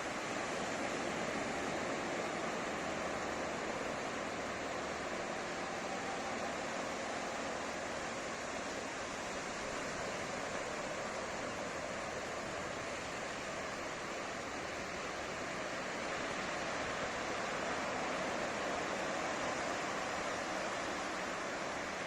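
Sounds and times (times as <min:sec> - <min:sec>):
waves breaking on beach: 0:00.0 - 0:22.0.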